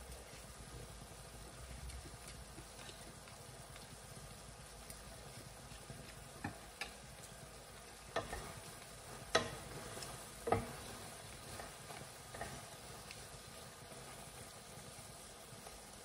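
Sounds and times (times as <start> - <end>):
food sizzling in a pan: 0.0 - 16.0
utensil knocking against pan: 9.3 - 9.7, 10.4 - 10.8.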